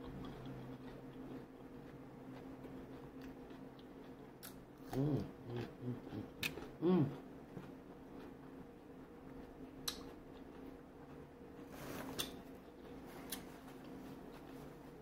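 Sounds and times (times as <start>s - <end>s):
person humming mm: 4.9s - 7.2s.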